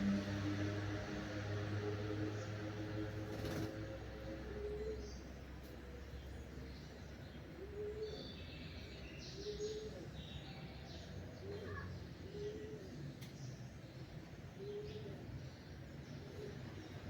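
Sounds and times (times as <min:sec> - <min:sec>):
small birds chirping: 0:04.6 - 0:17.0
dove cooing: 0:11.4 - 0:13.1.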